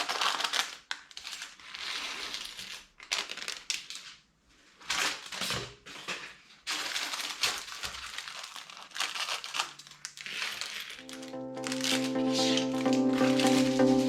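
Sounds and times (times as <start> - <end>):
plastic packaging crinkling: 0.0 - 11.0
music with steady notes: 11.0 - 14.0.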